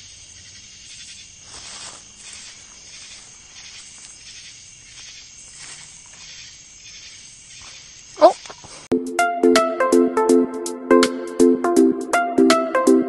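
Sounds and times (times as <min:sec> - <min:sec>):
crickets trilling: 0:00.0 - 0:08.9.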